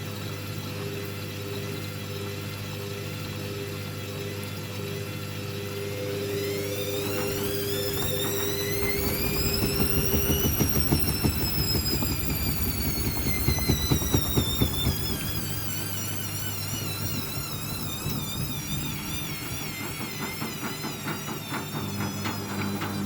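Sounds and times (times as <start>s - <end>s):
steady low hum: 0.0s - 22.9s
washing machine motor whining: 0.0s - 23.0s
rapid clatter: 6.4s - 23.0s.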